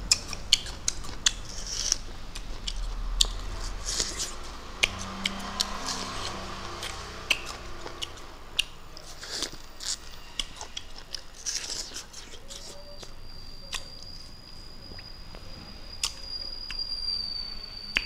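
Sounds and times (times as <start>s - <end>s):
crunchy vegetable chewing: 0.0s - 16.8s
wet mouth clicks: 0.1s - 13.1s.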